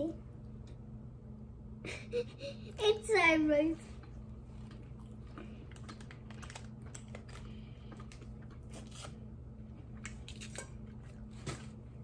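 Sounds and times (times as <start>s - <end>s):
steady low hum: 0.0s - 12.0s
candy chewing clicks and crackles: 4.6s - 9.2s.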